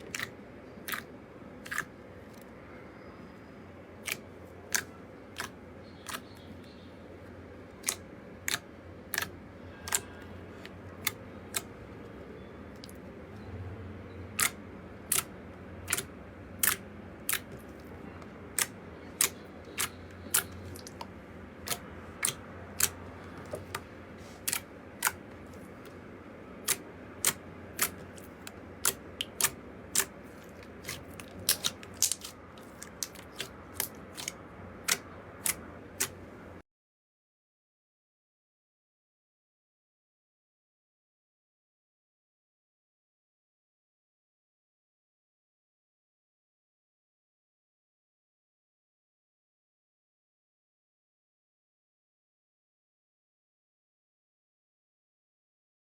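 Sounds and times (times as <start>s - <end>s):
slime clicking pops: 16.6s - 17.7s, 30.8s - 36.2s.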